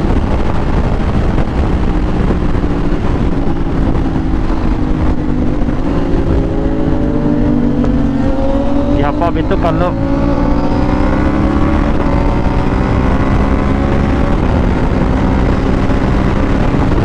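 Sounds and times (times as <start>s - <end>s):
motorcycle engine accelerating: 0.0s - 17.0s
wind rush on microphone: 0.0s - 17.0s.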